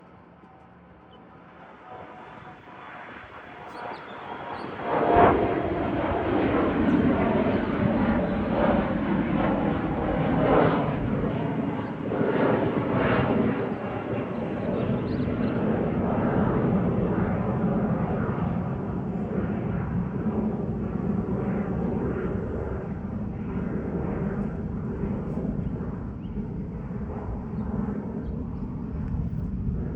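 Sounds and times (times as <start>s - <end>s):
jet engines roaring at takeoff: 0.0s - 29.9s.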